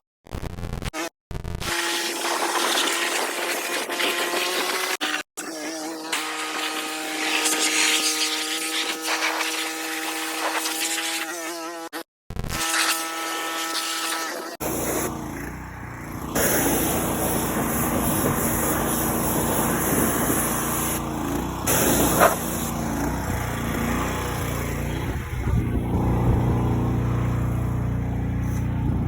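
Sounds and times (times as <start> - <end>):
engine running steadily: 14.6 - 29.0.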